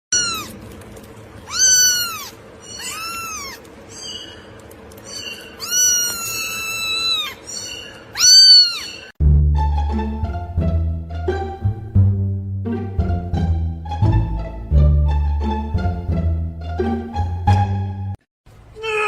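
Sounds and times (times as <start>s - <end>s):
cat meowing: 0.1s - 0.6s, 1.5s - 4.2s, 5.1s - 9.1s.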